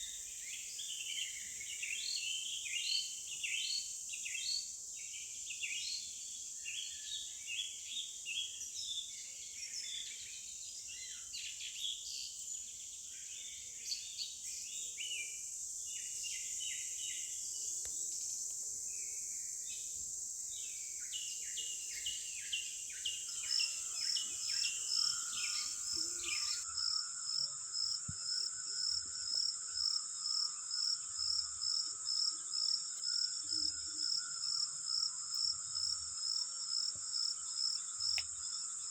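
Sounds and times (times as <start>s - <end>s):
high insect hiss: 0.0s - 8.9s, 13.8s - 38.9s
small birds chirping: 9.6s - 26.7s
insect chirping in even pulse: 20.6s - 38.9s.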